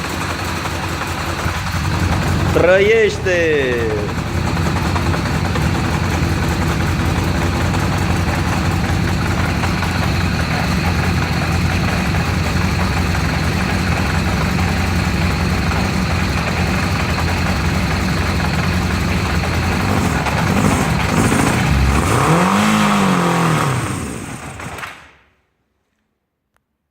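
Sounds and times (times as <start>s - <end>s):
motorcycle engine running and revving: 0.0s - 24.9s.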